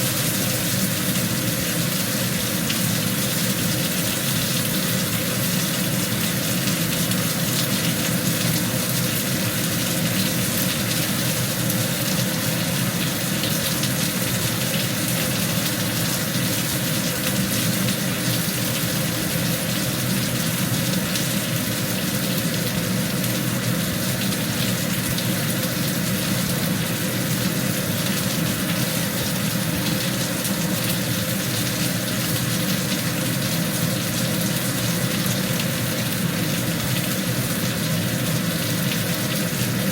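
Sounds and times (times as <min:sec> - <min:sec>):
meat sizzling in hot oil: 0:00.0 - 0:39.9.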